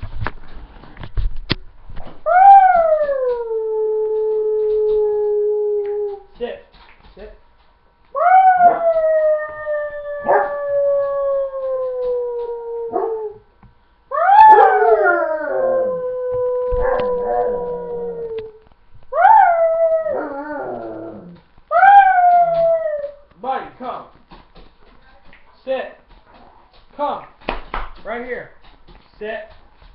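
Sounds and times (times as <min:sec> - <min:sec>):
dog howling: 0:02.2 - 0:06.3, 0:08.1 - 0:13.5, 0:14.1 - 0:23.3.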